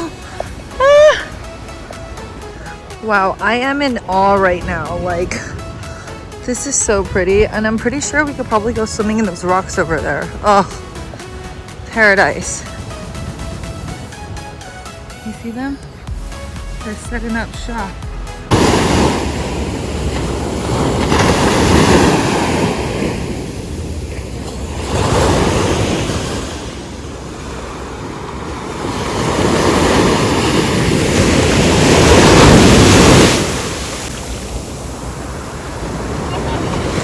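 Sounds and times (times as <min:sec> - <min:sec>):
wind buffeting microphone: 0:00.0 - 0:15.4
ocean surf breaking: 0:00.0 - 0:37.0.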